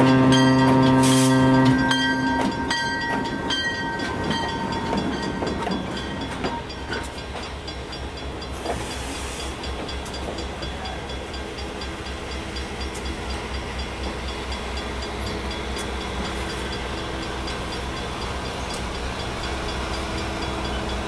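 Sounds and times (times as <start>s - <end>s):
train horn: 0.0s - 2.7s
train wheels clicking over joints: 0.5s - 21.0s.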